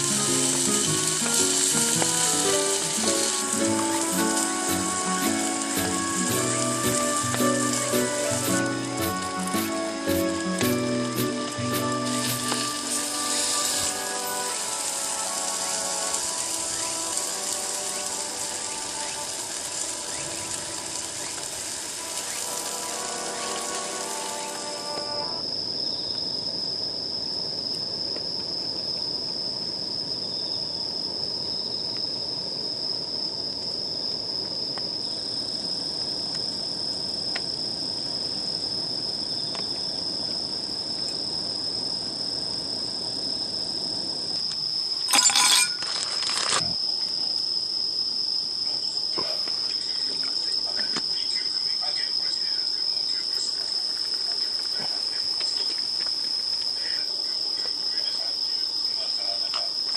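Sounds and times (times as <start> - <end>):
insects trilling: 0.0 - 59.9
metallic clatter: 45.1 - 46.2.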